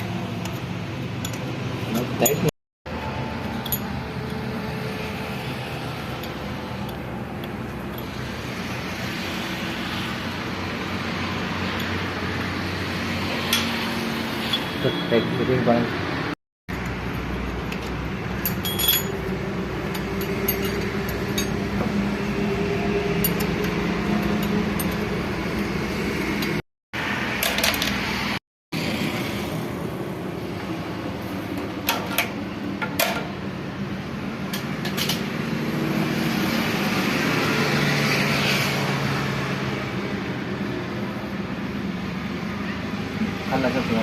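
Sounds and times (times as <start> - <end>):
metal parts clinking and knocking: 0.4 - 2.5, 16.8 - 21.8, 23.2 - 25.2.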